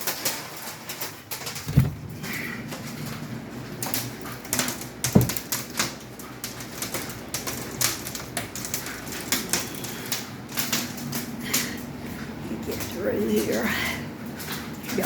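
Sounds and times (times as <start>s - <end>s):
hail ticking on windows: 0.0s - 15.0s
heavy thump: 1.6s - 2.2s, 5.2s - 5.4s.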